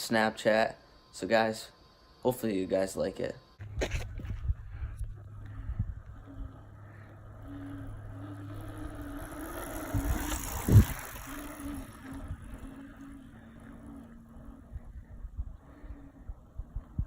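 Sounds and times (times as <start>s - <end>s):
dirt bike engine running: 3.6s - 16.2s.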